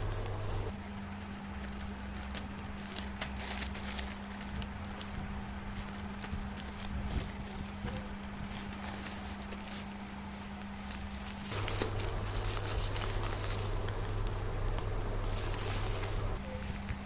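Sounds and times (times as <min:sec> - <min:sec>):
low electrical hum: 0:00.0 - 0:17.0
packaging tapping and rustling: 0:11.5 - 0:16.4.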